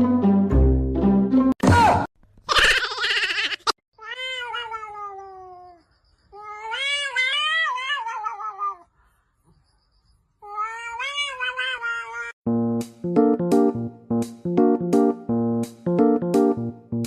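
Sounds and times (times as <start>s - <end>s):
cat meowing: 4.0s - 5.8s, 6.4s - 8.9s, 10.4s - 12.4s.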